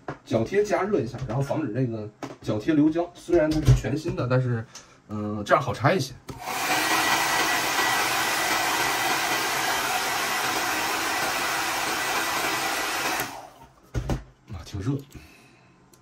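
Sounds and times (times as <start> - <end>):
hot-air blower running: 6.3 - 13.7.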